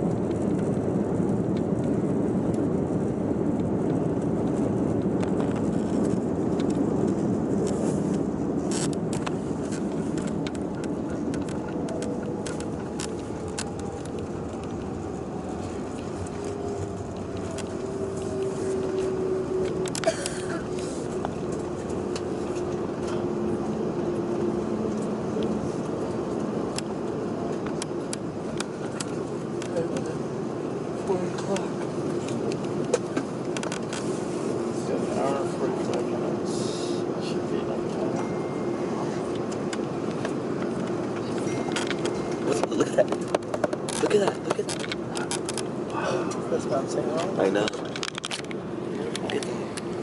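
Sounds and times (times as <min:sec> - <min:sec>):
airliner cabin rumble: 0:00.0 - 0:50.0
light clicks and rattles: 0:39.3 - 0:45.7, 0:47.1 - 0:49.9.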